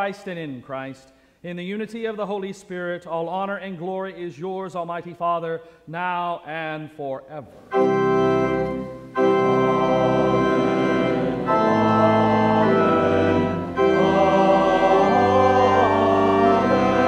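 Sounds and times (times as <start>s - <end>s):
church organ chords: 7.7s - 17.0s.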